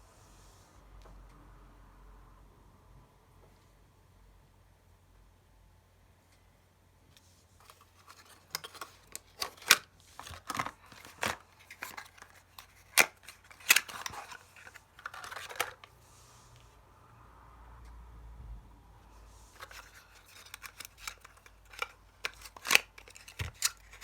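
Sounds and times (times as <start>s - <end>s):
packaging rustling: 7.6s - 15.9s, 19.5s - 24.0s.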